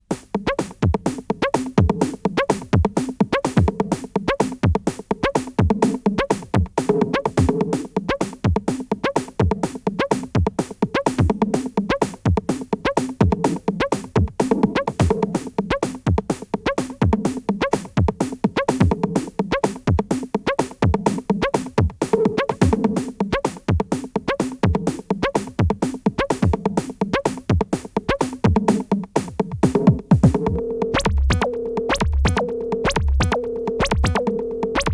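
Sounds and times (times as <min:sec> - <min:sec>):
drum machine kick: 0:00.1 - 0:34.9
clicking percussion: 0:22.1 - 0:34.9
sustained synthesizer tones: 0:30.4 - 0:34.9.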